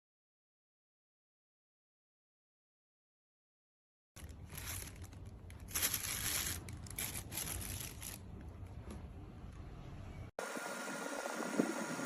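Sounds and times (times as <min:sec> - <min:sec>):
crinkling and rustling: 0:04.2 - 0:09.2.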